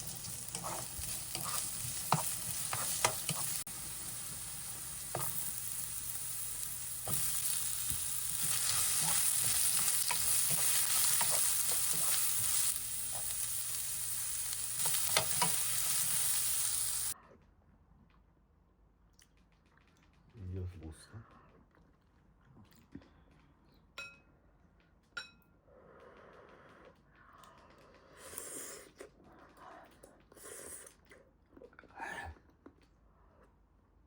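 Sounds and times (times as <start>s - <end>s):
utensil stirring and clicking: 0.0s - 16.3s
food sizzling in a pan: 0.0s - 17.2s.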